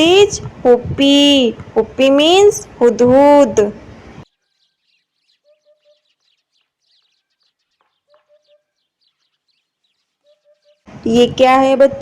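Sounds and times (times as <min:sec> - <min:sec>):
small birds chirping: 0:01.3 - 0:12.0
hoopoe calling: 0:04.4 - 0:10.9.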